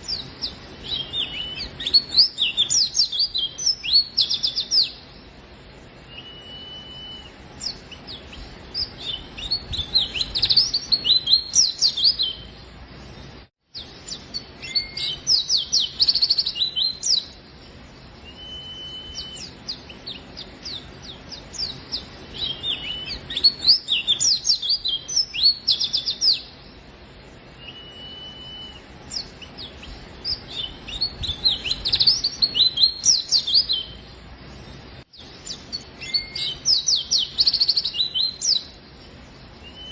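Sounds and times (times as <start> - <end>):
bird twittering chirps: 0.0 - 5.4, 6.0 - 26.9, 27.5 - 39.9
bird whistled note: 6.1 - 7.4, 14.6 - 15.2, 18.3 - 19.5, 27.6 - 28.8.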